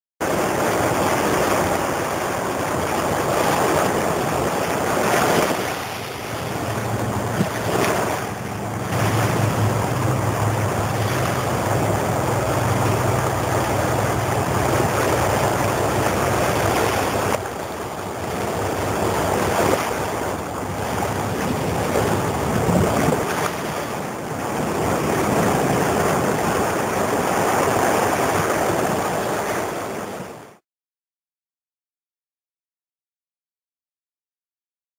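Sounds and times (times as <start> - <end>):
wind buffeting microphone: 0.2 - 30.5
surf washing ashore: 0.2 - 30.6
low steady hum: 4.2 - 23.5.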